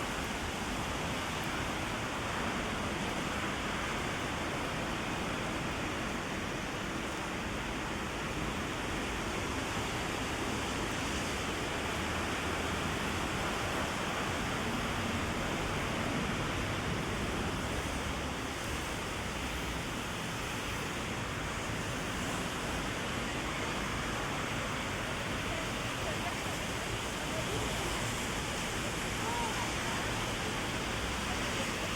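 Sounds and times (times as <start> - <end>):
heavy rain on an umbrella: 0.0 - 31.9.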